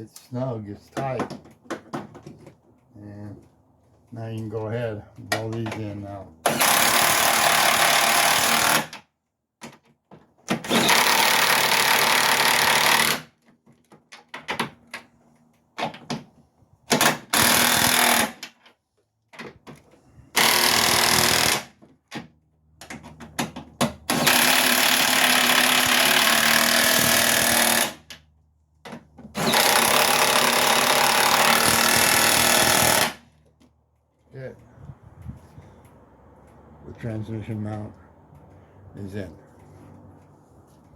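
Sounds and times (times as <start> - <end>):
impact wrench running: 20.4 - 21.8, 24.1 - 28.1, 29.4 - 33.2.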